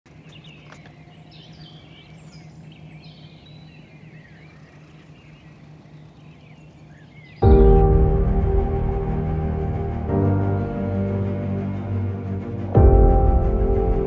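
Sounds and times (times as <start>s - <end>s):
small birds chirping: 0.1s - 8.0s
steady low hum: 1.1s - 14.0s.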